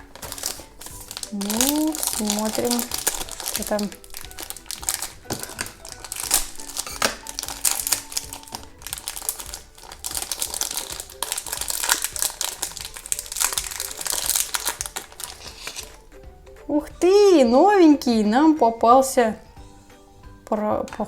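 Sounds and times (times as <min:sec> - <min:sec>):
plastic packet crinkling: 0:00.0 - 0:16.0
faint background music: 0:00.0 - 0:21.0.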